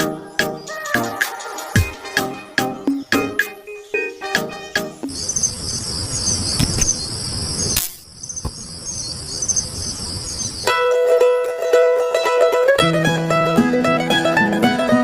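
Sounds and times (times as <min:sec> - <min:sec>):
crickets chirping: 0:05.1 - 0:10.7
plucked string music: 0:10.7 - 0:15.0.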